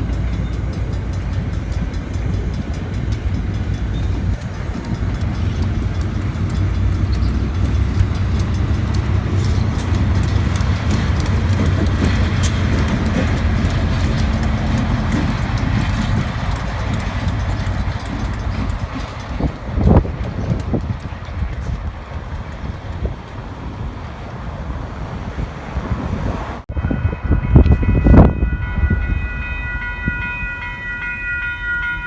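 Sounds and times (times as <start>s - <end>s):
diesel locomotive engine drone: 0.0s - 32.0s
wheels clicking over rail joints: 0.0s - 32.0s.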